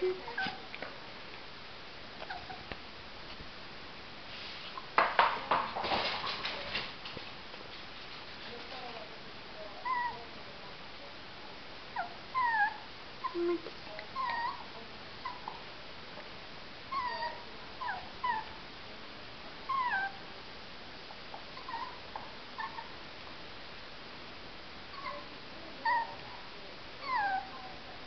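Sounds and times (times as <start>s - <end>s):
puppy whimpering: 0.0s - 0.6s, 2.2s - 2.7s, 9.8s - 10.2s, 12.0s - 15.6s, 16.9s - 18.6s, 19.7s - 20.2s, 21.6s - 22.0s, 22.6s - 23.0s, 24.9s - 26.2s, 27.0s - 27.7s.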